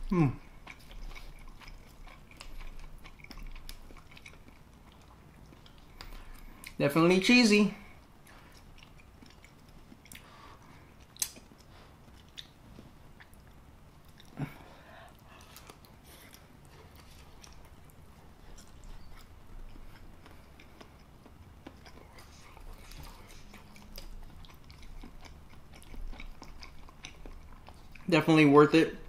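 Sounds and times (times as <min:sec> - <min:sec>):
person chewing food: 0:00.0 - 0:06.8, 0:07.8 - 0:28.2.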